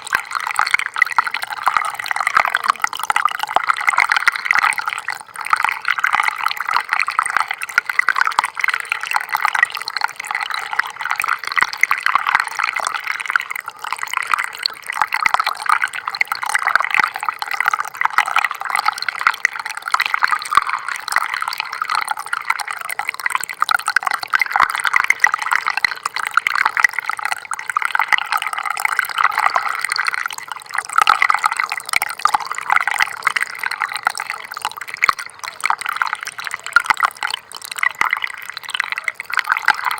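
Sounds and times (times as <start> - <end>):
stream trickling and gurgling: 0.0 - 39.9.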